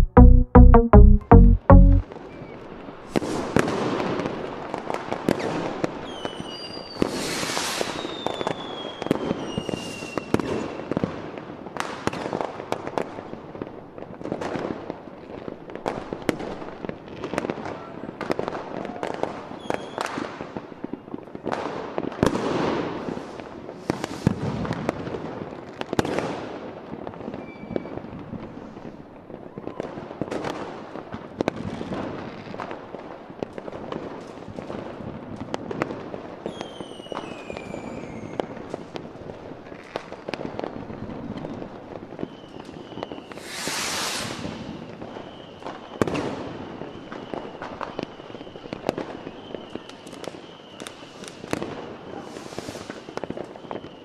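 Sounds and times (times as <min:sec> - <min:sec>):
firework bangs and crackling: 0:02.4 - 0:54.0
whistling rockets: 0:05.2 - 0:10.9, 0:18.9 - 0:20.4, 0:22.9 - 0:24.9, 0:27.2 - 0:28.3, 0:36.4 - 0:38.9, 0:41.4 - 0:54.0.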